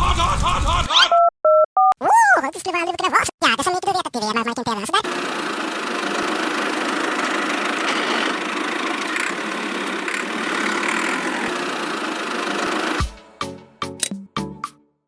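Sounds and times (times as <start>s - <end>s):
small motor running steadily: 5.0s - 13.1s.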